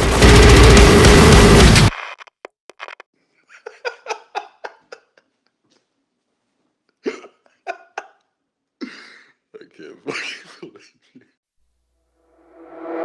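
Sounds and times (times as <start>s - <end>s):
loud heavy music: 0.0s - 1.9s
person giggling: 3.4s - 5.7s, 7.0s - 11.4s.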